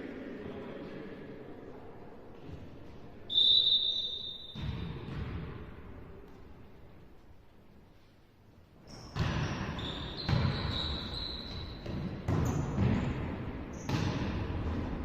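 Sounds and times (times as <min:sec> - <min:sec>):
sneakers squeaking on court: 0:08.8 - 0:14.2.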